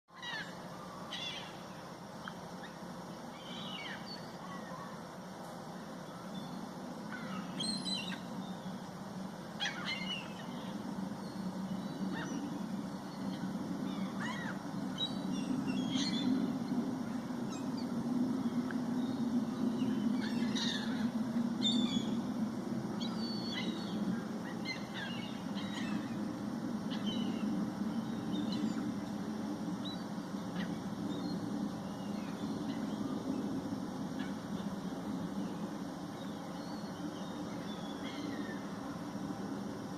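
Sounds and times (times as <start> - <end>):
flock of birds calling: 9.6 - 10.9, 11.8 - 18.0, 19.8 - 22.1.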